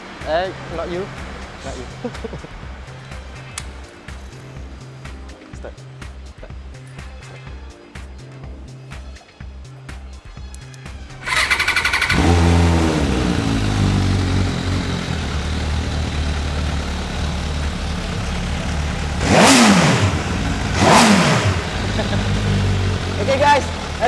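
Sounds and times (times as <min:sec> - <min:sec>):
motorcycle engine idling and revving: 0:00.0 - 0:04.8, 0:10.4 - 0:24.0
motorcycle starter cranking: 0:11.2 - 0:24.0.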